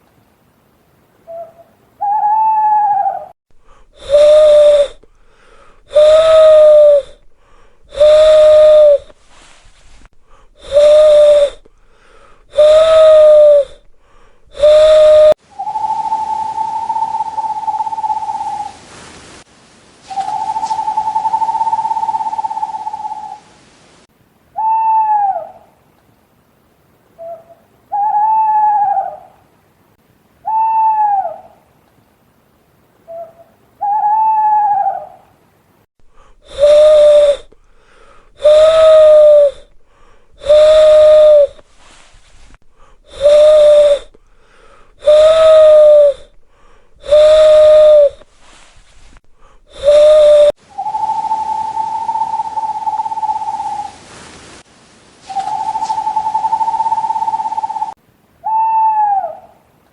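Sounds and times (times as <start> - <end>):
owl whistled note: 1.3 - 3.3, 4.0 - 5.0, 5.9 - 7.2, 7.9 - 10.0, 10.6 - 11.6, 12.5 - 13.8, 14.5 - 18.8, 20.0 - 23.4, 24.6 - 25.5, 30.4 - 31.4, 36.5 - 37.5, 38.4 - 39.7, 40.4 - 42.1, 43.1 - 44.2, 45.0 - 46.3, 47.0 - 49.1, 49.7 - 54.0, 55.2 - 59.6
owl hooting: 1.3 - 18.8, 20.0 - 23.5, 24.5 - 25.8, 27.2 - 29.4, 30.4 - 31.6, 33.1 - 35.3, 36.1 - 54.0, 55.2 - 59.7.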